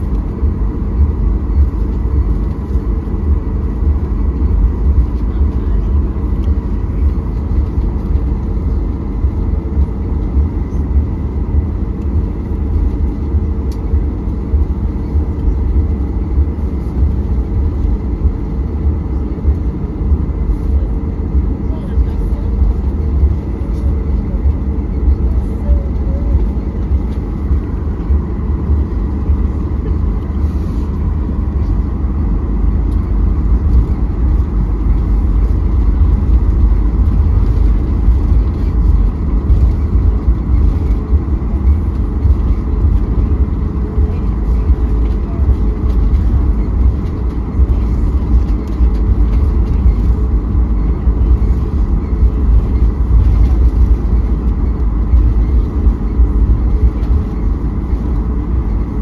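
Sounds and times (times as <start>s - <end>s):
faint steady hums: 0.0s - 59.0s
vehicle rumble from inside cabin: 0.0s - 59.0s.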